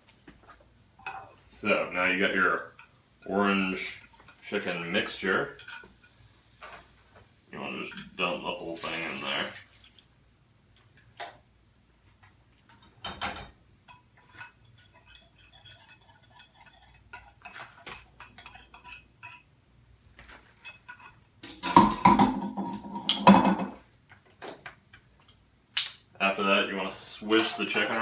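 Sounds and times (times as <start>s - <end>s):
cookware clinking and scraping: 1.0s - 1.4s, 2.3s - 6.9s, 12.9s - 19.5s, 20.2s - 23.8s, 27.2s - 28.0s.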